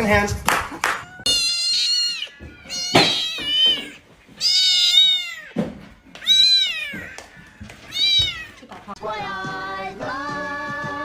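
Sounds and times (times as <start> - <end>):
cat meowing: 1.0 - 8.8.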